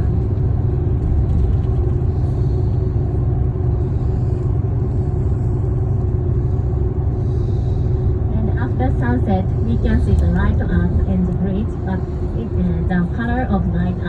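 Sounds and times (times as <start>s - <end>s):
faint constant hum: 0.0s - 14.0s
train cabin low rumble: 0.0s - 14.0s.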